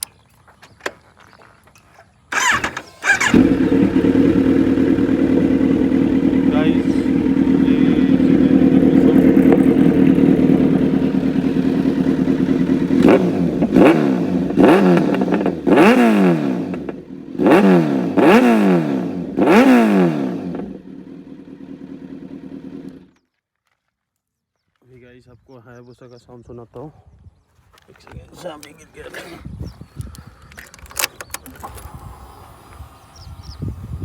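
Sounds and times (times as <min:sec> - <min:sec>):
motorcycle engine idling and revving: 0:02.3 - 0:23.2.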